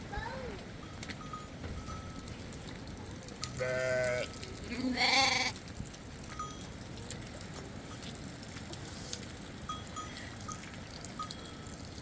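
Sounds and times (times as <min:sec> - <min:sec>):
animal bleat: 0:03.6 - 0:05.6.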